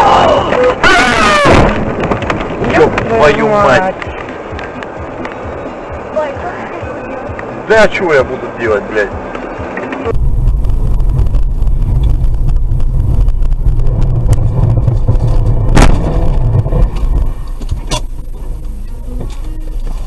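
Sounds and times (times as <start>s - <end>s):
car driving rumble from inside: 9.2s - 20.0s.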